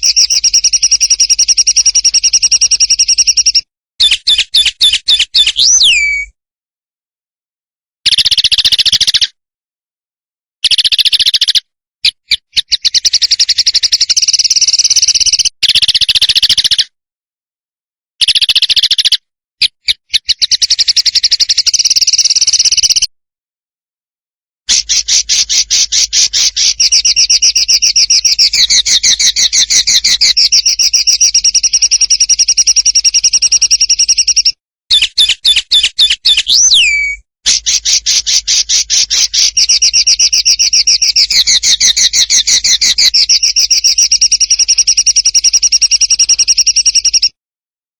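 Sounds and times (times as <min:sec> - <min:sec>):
songbird rattling trills: 0:00.0 - 0:04.7, 0:12.6 - 0:16.8, 0:24.7 - 0:47.3.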